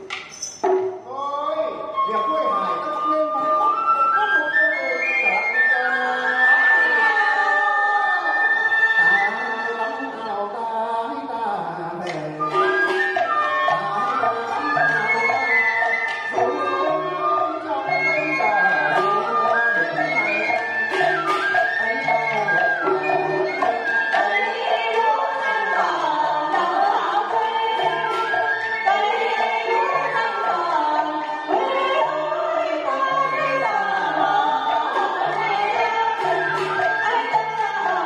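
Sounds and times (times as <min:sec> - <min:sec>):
sliding traditional melody: 0:00.0 - 0:38.0
drum and percussion strokes: 0:18.9 - 0:24.3.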